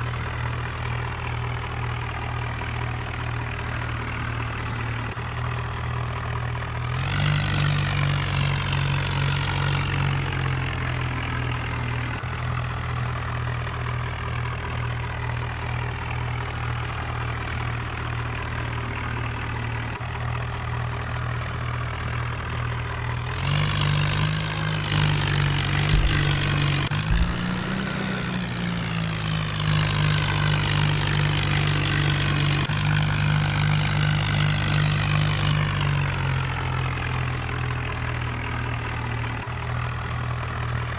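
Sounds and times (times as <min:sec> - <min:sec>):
tractor engine running: 0:00.0 - 0:40.9
low knocks: 0:25.2 - 0:28.2.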